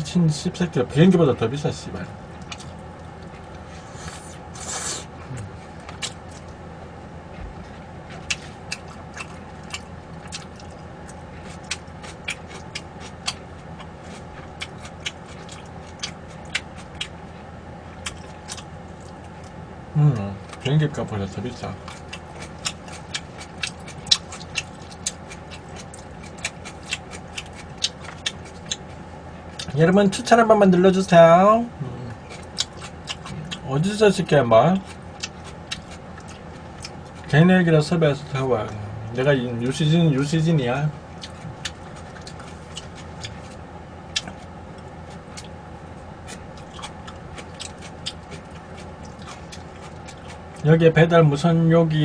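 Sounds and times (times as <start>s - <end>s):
low background hum: 0.0s - 52.0s
chewing food: 2.3s - 6.6s, 7.3s - 19.6s, 20.4s - 20.8s, 21.4s - 29.8s, 32.2s - 33.7s, 34.7s - 37.4s, 41.0s - 50.7s.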